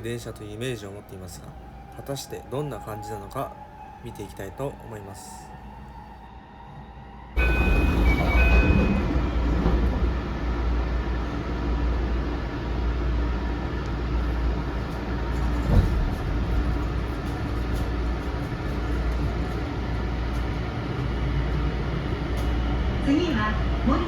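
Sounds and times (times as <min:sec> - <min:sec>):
train wheels rumbling on rail: 0:07.4 - 0:24.0.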